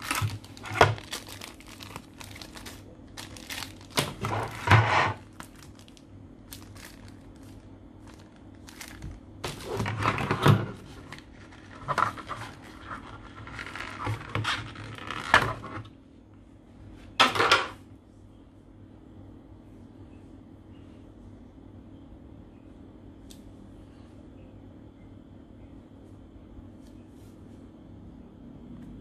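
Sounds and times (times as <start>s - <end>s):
packaging rustling and knocking: 0.0s - 15.9s.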